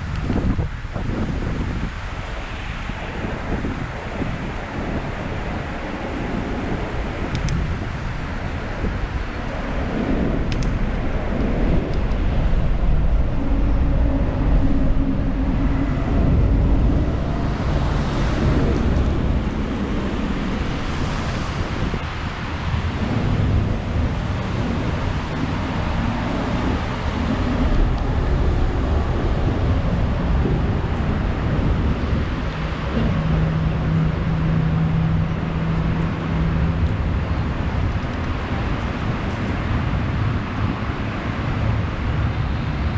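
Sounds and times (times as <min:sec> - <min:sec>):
wind on microphone: 0:00.0 - 0:42.9
passing vehicle engine hum: 0:10.7 - 0:42.9.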